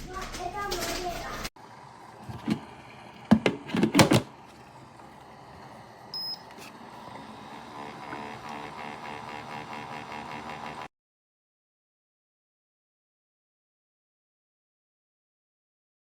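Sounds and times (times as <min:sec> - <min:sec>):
humidifier humming: 0:00.0 - 0:10.9
short high beep: 0:06.2 - 0:06.5.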